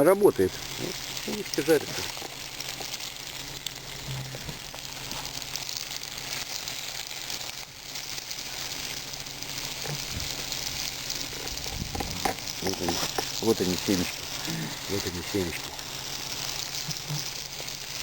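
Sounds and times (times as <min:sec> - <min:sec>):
log fire crackling: 0:00.0 - 0:18.0
seeds sizzling in a frying pan: 0:00.0 - 0:18.0.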